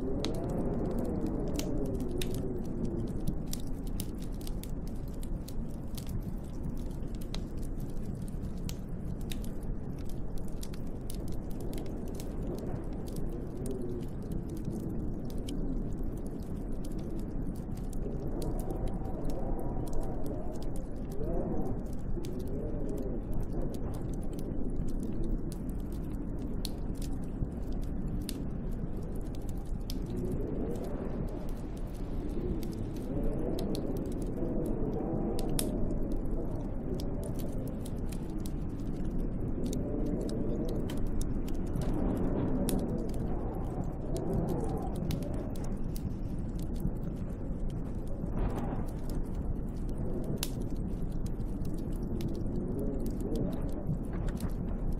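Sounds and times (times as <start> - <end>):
low wind whistling: 0.0 - 54.9
small sharp clicks and ticks: 0.0 - 54.9
wind blowing in gusts: 0.0 - 54.9.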